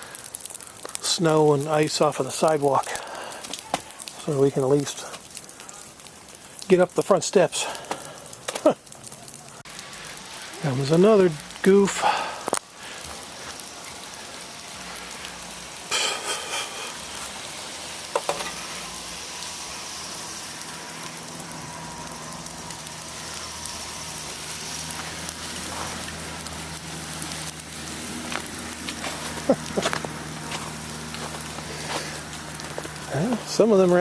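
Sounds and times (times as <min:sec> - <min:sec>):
crackling hiss of sleet and ice: 0:00.0 - 0:34.0
car engine running: 0:20.6 - 0:33.7.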